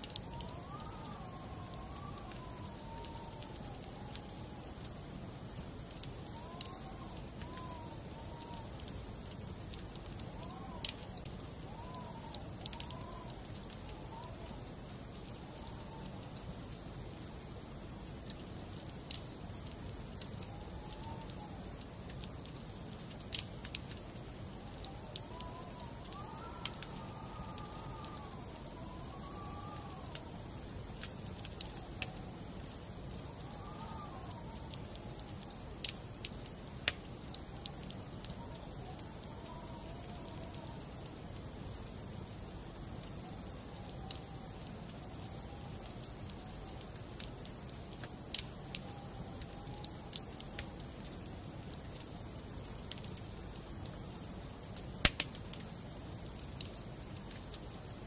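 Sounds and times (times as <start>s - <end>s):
fire hissing: 0.0s - 53.6s
fire crackling and popping: 0.0s - 58.0s
faint whistle-like tones: 23.9s - 36.5s, 43.1s - 47.3s.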